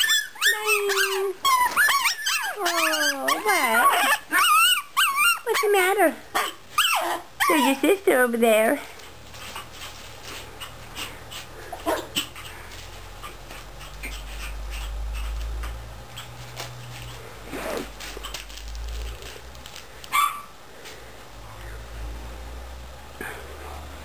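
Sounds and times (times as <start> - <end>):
puppies yipping and whining: 0.0 - 7.9.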